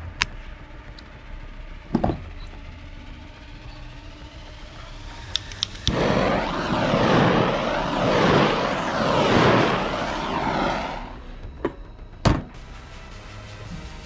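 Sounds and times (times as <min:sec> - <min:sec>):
sharp clicks: 0:05.3 - 0:07.0
loud rushing air: 0:05.8 - 0:11.3.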